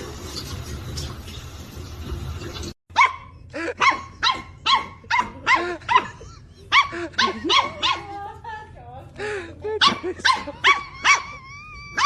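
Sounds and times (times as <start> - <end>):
dog barking rapidly: 2.9 - 8.1, 9.8 - 11.4.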